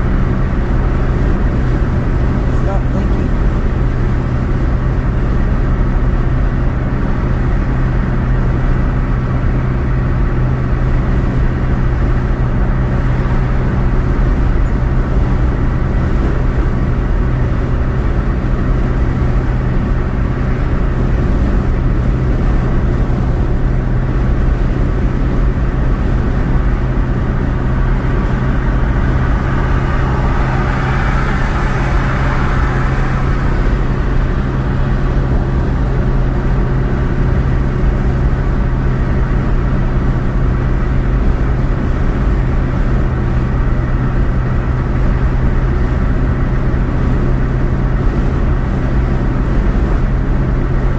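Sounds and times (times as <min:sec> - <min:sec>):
car road and engine noise: 0:00.0 - 0:50.9
constant low hum: 0:23.4 - 0:42.2.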